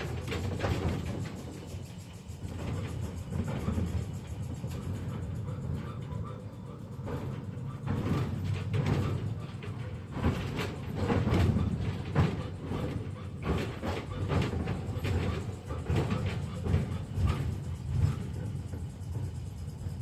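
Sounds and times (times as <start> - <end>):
tram rumbling: 0.0 - 20.0
wheels clattering on rails: 0.0 - 20.0.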